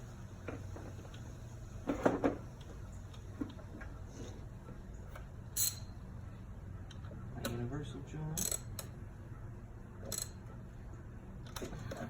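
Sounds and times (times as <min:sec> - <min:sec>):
steady low hum: 0:00.0 - 0:12.0
hand tools clicking and knocking: 0:08.4 - 0:08.9.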